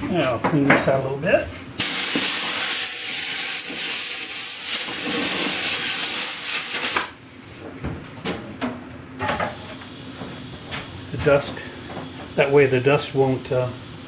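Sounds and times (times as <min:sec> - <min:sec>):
compressed air hissing: 0:01.8 - 0:07.2.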